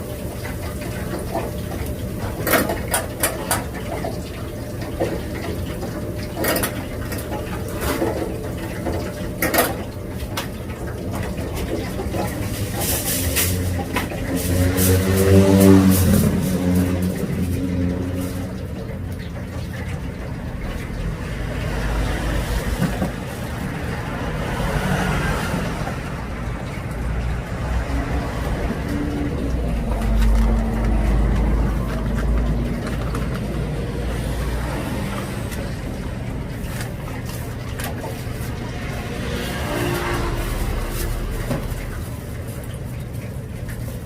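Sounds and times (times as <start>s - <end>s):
street noise: 0.0s - 44.0s
vehicles rumbling: 0.0s - 44.0s.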